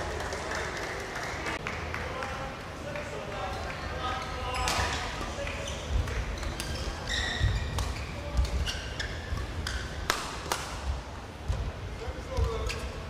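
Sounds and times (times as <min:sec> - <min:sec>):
shoes squeaking on court floor: 0:03.5 - 0:10.1, 0:11.4 - 0:13.0
rackets striking shuttlecock: 0:07.7 - 0:11.6.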